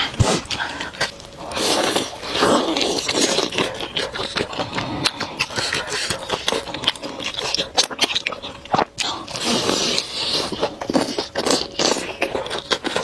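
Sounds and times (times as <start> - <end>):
wet chewing and mouth clicks: 0.0 - 13.0.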